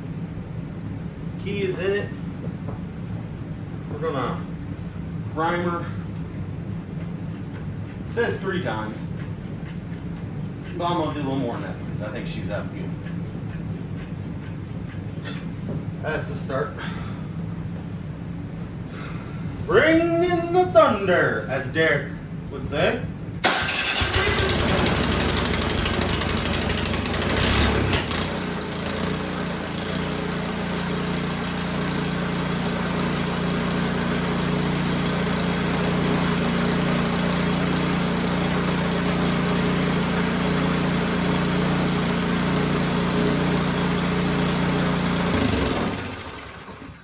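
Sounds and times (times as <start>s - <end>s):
small snow blower engine running: 23.4s - 47.0s.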